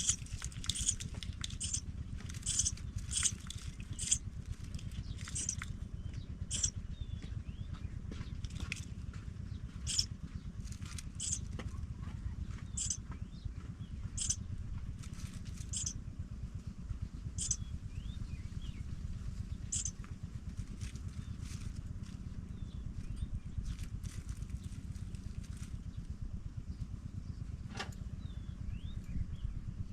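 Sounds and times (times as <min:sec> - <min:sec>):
high-pitched bird chirps: 0:00.0 - 0:01.8, 0:02.4 - 0:04.2, 0:05.2 - 0:05.6, 0:06.5 - 0:06.8, 0:09.8 - 0:10.1, 0:11.1 - 0:11.5, 0:12.7 - 0:13.0, 0:14.1 - 0:14.4, 0:15.6 - 0:16.0, 0:17.4 - 0:17.7, 0:19.6 - 0:20.0
faint thin chirps: 0:00.0 - 0:04.2, 0:05.2 - 0:05.6, 0:06.5 - 0:06.7, 0:09.9 - 0:10.1, 0:11.2 - 0:11.5, 0:12.8 - 0:13.0, 0:15.6 - 0:15.9, 0:17.4 - 0:17.6, 0:19.7 - 0:20.0
steady low rumble: 0:00.0 - 0:29.9.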